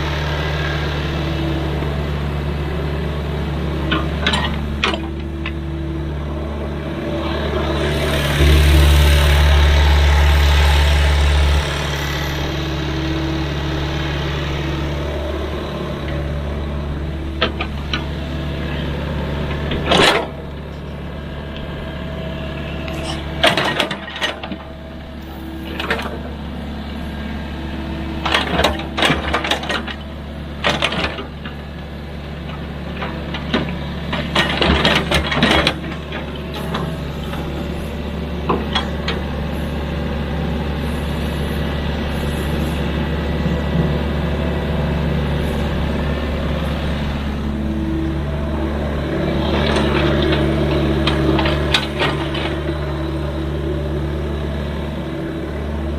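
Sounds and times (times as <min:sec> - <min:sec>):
diesel engine running: 0:00.0 - 0:55.9
metallic clanks and knocks: 0:22.8 - 0:24.6.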